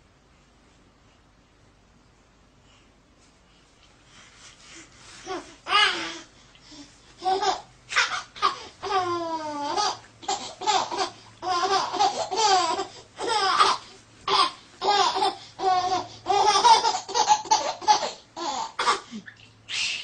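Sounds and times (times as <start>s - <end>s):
baby laughing: 7.2s - 20.0s.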